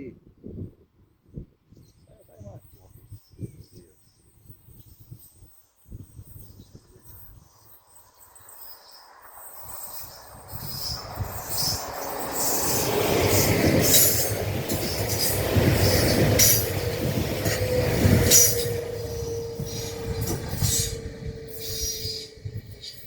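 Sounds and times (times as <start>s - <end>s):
steady wheel squeal: 10.7s - 23.0s
train wheels clicking over rail joints: 10.7s - 23.0s.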